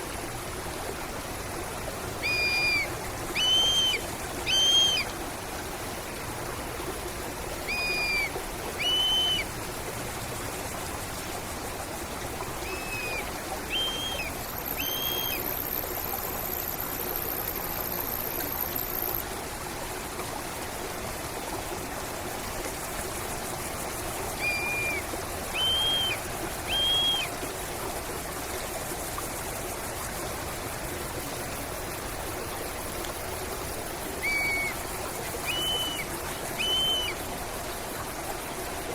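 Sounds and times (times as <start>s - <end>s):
stream flowing: 0.0s - 38.9s
bird whistling short notes: 2.2s - 5.0s, 7.7s - 9.4s, 12.6s - 15.4s, 24.4s - 25.0s, 25.6s - 27.3s, 34.2s - 34.7s, 35.4s - 37.2s
thin high-pitched hiss: 7.7s - 9.5s, 12.6s - 19.2s, 23.7s - 27.3s, 34.2s - 37.3s.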